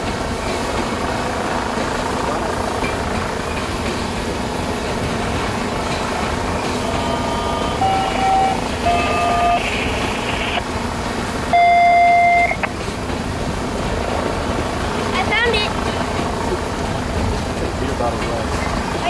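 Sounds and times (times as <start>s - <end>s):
freight train wheels rumbling: 0.0s - 19.0s
train horn: 6.7s - 9.6s.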